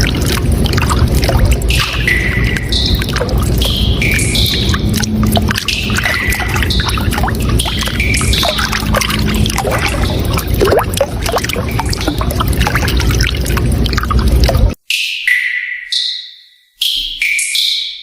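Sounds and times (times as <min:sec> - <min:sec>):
running water: 0:00.0 - 0:14.8.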